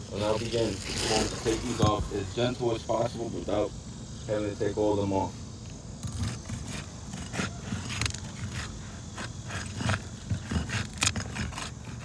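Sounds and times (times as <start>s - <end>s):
shingles scraping while pried loose: 6.0s - 12.0s.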